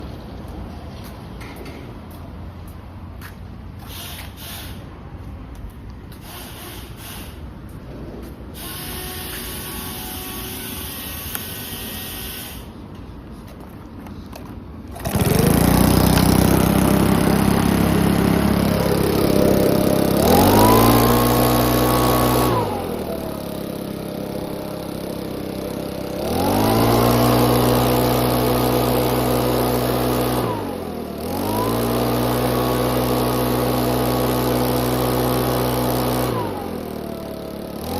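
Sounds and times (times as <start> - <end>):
engine blower revving: 8.5 - 12.8, 14.8 - 37.9.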